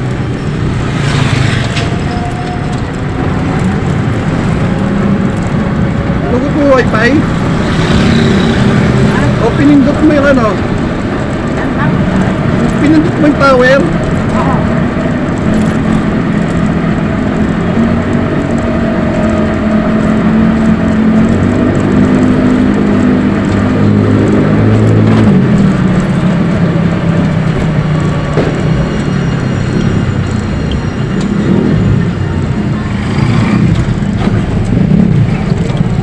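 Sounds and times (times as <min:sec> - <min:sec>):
road noise: 0:00.0 - 0:36.0
traffic engine drone: 0:00.0 - 0:36.0.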